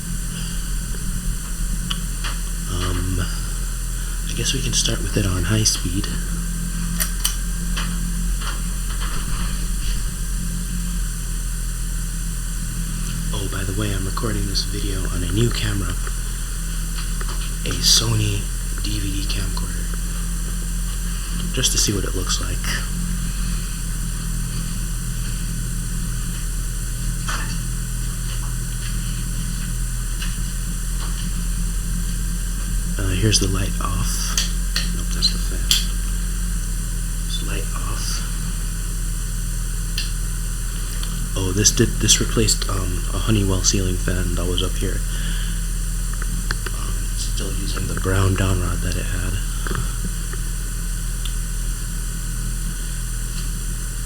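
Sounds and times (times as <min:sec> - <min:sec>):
ceiling fan motor hum: 0:00.0 - 0:54.0
sharp clicks: 0:06.8 - 0:09.0, 0:46.1 - 0:46.8.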